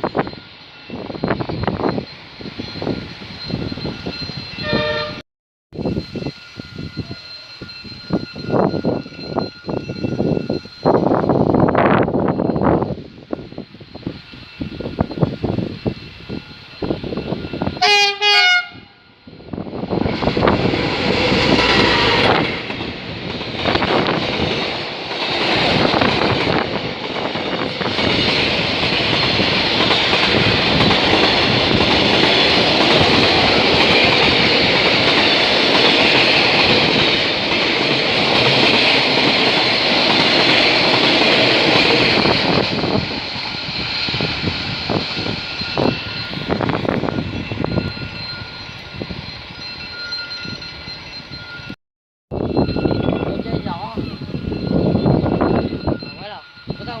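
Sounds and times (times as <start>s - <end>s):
train wagons rumbling and clacking: 0.0s - 57.0s
train horn blast: 4.6s - 5.2s, 17.8s - 19.1s.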